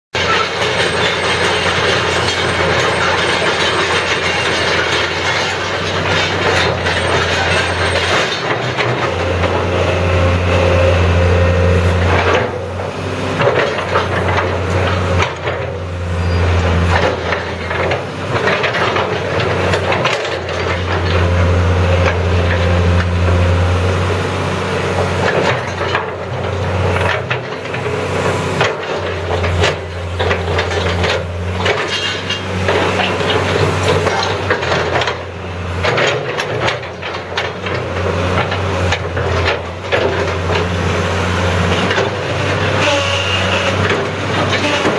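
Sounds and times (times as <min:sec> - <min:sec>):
metal clanks and knocks: 0:00.2 - 0:09.7
excavator diesel engine running: 0:00.2 - 0:44.9.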